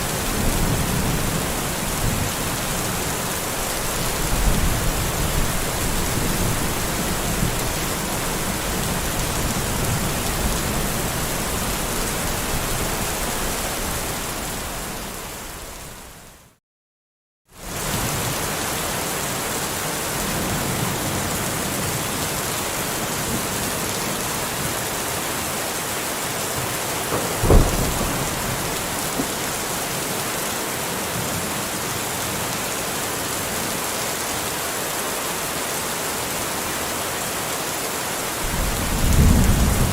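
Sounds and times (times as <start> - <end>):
rain hissing: 25.4 - 31.7, 38.0 - 39.9
low thunder rumbling: 27.1 - 29.7, 38.4 - 39.9.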